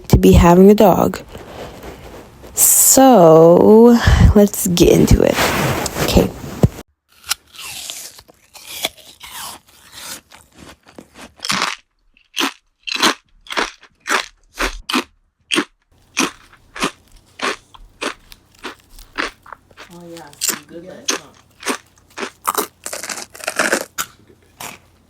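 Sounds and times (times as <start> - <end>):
crunchy food being chewed: 7.1 - 25.0.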